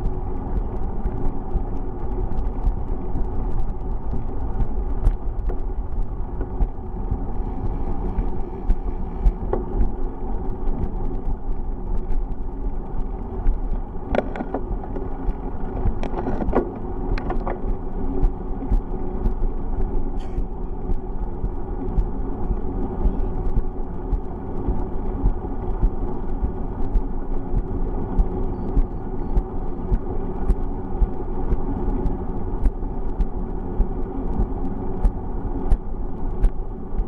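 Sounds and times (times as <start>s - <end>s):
wind and road rumble: 0.0s - 37.0s
bicycle clicks and rattles: 0.9s - 18.7s.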